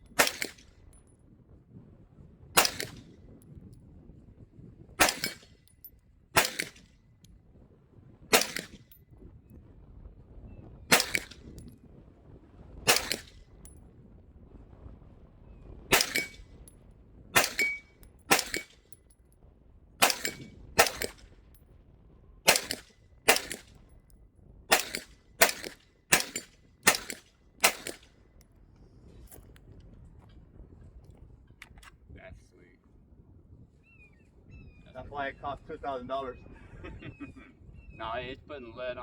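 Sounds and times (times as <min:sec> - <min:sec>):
gunshots: 0:00.2 - 0:00.6, 0:02.6 - 0:03.0, 0:05.0 - 0:05.5, 0:06.4 - 0:06.8, 0:08.3 - 0:08.8, 0:10.9 - 0:11.5, 0:12.9 - 0:13.4, 0:15.9 - 0:16.4, 0:17.4 - 0:18.8, 0:20.0 - 0:21.2, 0:22.5 - 0:23.7, 0:24.7 - 0:28.0.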